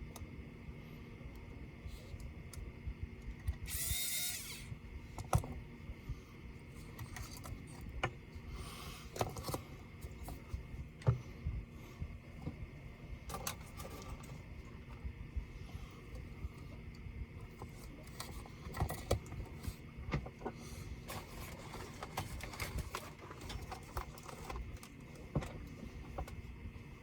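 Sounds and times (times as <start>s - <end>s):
electric screwdriver running: 3.6s - 4.7s.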